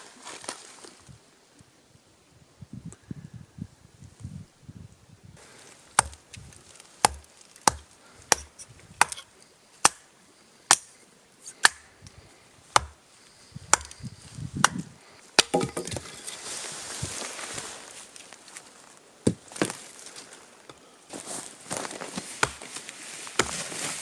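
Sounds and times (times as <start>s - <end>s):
wood rustling and crunching: 5.4s - 9.3s, 13.6s - 24.0s
axe chopping wood: 5.9s - 6.2s, 7.0s - 10.0s, 10.7s - 10.9s, 11.6s - 11.9s, 12.7s - 13.0s, 13.7s - 14.0s, 14.6s - 16.1s, 22.4s - 22.6s, 23.4s - 23.6s.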